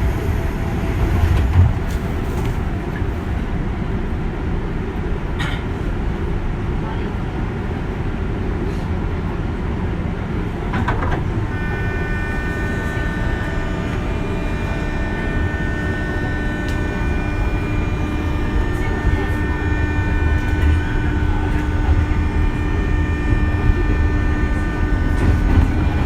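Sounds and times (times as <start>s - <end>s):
train wheels rumbling on rail: 0.0s - 26.0s
constant-pitch whining tones: 10.6s - 26.0s.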